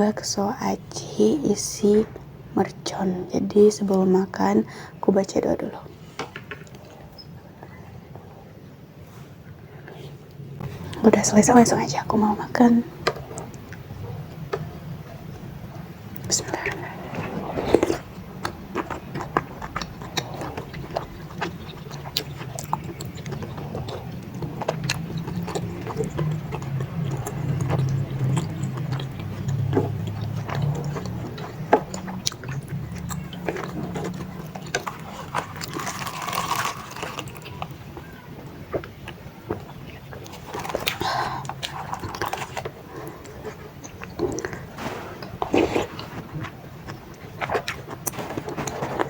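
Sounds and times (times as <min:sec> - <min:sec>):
chewing chewy food: 0:09.9 - 0:49.0
breathy noisy sound: 0:39.8 - 0:46.5.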